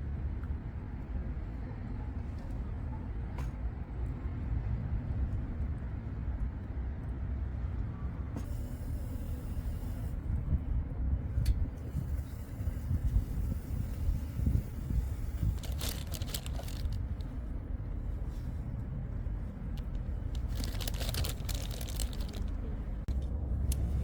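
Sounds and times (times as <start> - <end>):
wind buffeting microphone: 10.2 - 18.0.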